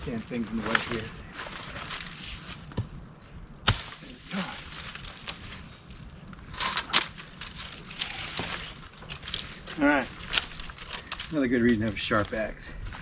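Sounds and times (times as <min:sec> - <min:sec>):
wood crackling apart: 0:00.0 - 0:13.0
axe striking wood: 0:03.7 - 0:04.1.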